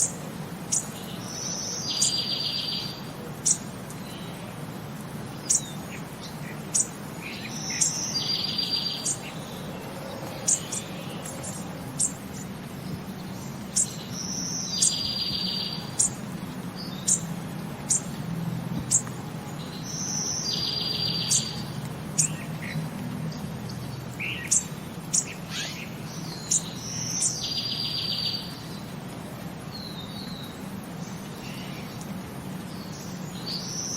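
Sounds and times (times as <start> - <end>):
bird singing trills: 0.0 - 4.6, 5.2 - 18.2, 18.8 - 28.9.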